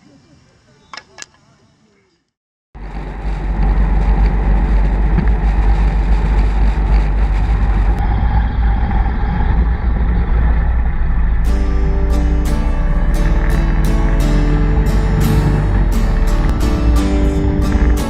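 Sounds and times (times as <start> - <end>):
vehicle engine rumble: 2.8 - 18.0.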